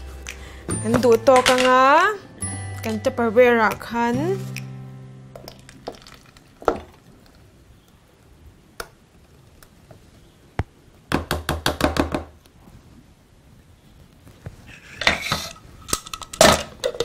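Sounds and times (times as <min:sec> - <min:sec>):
thick liquid pouring: 0:05.4 - 0:07.4
knocks and taps: 0:10.6 - 0:12.3.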